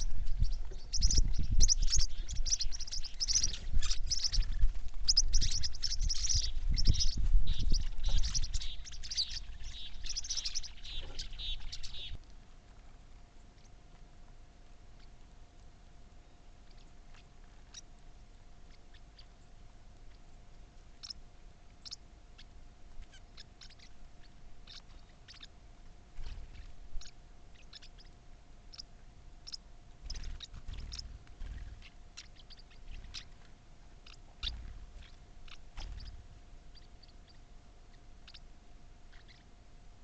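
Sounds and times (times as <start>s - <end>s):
soft low thumps: 0.0s - 12.1s
birds chipping and clicking: 0.0s - 39.6s
faint steady hum: 0.0s - 40.0s.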